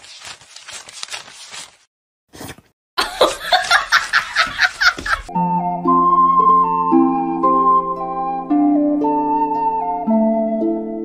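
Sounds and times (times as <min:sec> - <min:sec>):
loud laughter: 0:03.0 - 0:05.3
flute music: 0:05.3 - 0:11.0.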